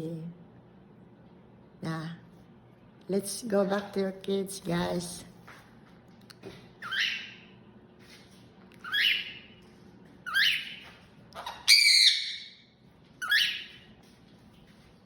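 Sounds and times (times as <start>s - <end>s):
pet bird calling: 6.8s - 7.4s, 8.8s - 9.5s, 10.3s - 12.6s, 13.2s - 13.8s.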